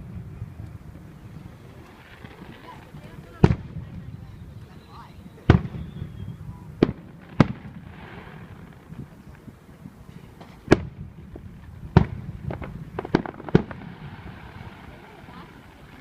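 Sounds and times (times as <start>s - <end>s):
aerial fireworks bangs: 5.5s - 6.2s, 6.8s - 9.1s, 10.4s - 16.0s.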